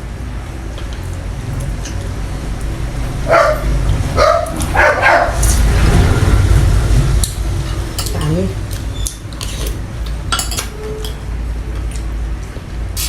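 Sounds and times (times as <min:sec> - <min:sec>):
steady low rumble: 0:00.0 - 0:10.4
dog barking: 0:03.2 - 0:05.4.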